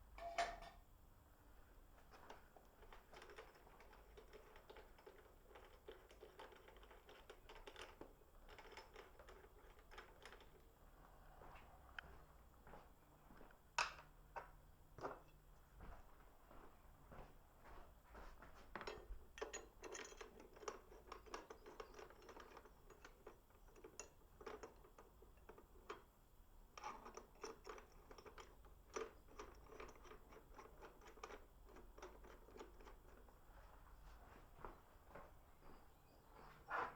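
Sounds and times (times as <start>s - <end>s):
faint clicking and scratching: 1.9s - 12.2s, 17.7s - 35.8s.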